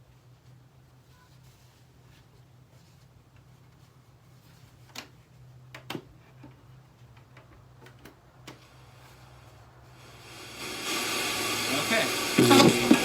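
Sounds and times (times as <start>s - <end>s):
radio static: 10.9s - 13.0s.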